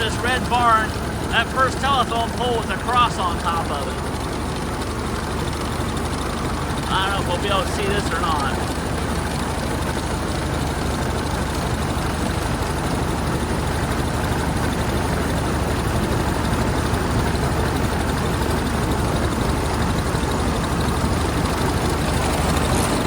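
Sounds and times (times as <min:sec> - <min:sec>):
single-cylinder car engine running: 0:00.0 - 0:23.0.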